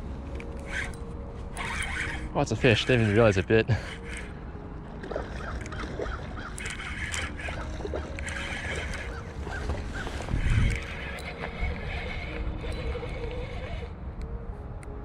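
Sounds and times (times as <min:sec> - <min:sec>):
river water rumble: 0:00.0 - 0:14.2
fishing reel clicking: 0:00.3 - 0:04.3, 0:05.0 - 0:14.0
wind on camera: 0:08.8 - 0:13.9.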